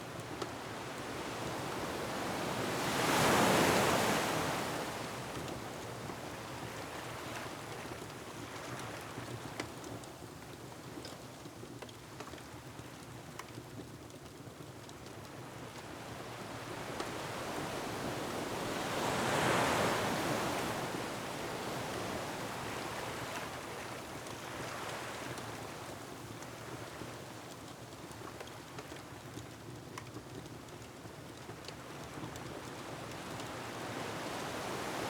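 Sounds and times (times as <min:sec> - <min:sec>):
ocean waves on rocky shore: 0:16.7 - 0:23.7.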